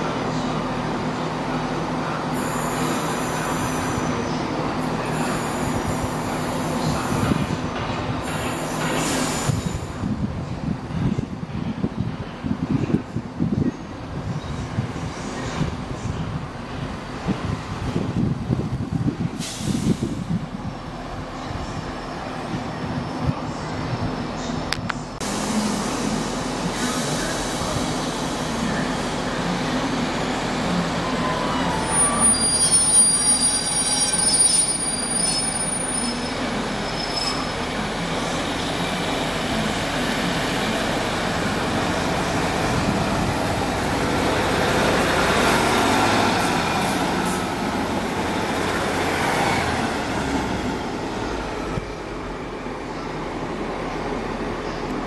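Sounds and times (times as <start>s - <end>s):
train engine and wheels rumbling: 0.0s - 55.0s
wheel squeals: 31.0s - 37.8s.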